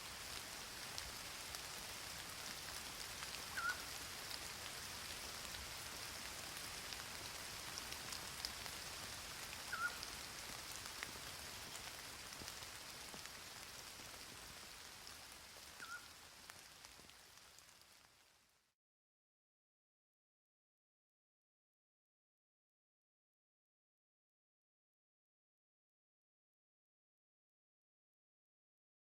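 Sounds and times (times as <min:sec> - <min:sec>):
steady rain falling: 0:00.0 - 0:18.8.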